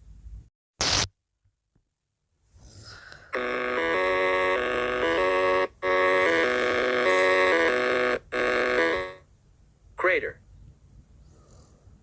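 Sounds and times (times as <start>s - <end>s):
simple electronic melody: 3.4s - 9.3s.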